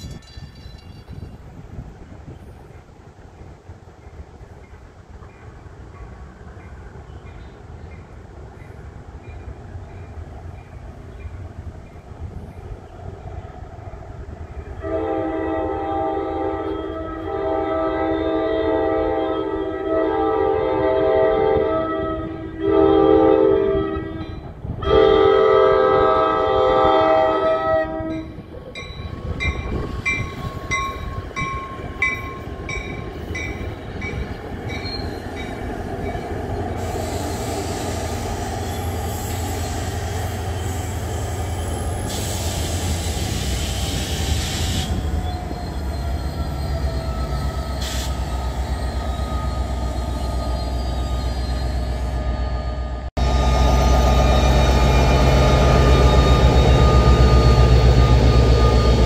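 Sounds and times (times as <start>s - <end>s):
railroad crossing bell dinging: 0.0s - 1.6s, 28.1s - 36.9s
train rumble: 0.0s - 59.0s
train horn blast: 14.8s - 28.4s
wheels squealing: 28.6s - 59.0s
train brake hiss: 36.7s - 52.4s.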